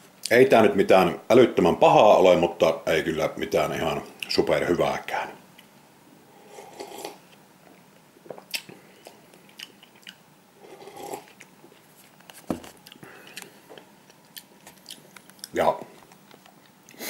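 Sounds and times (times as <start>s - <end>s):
person chewing noodles: 6.4s - 7.2s, 8.2s - 17.0s.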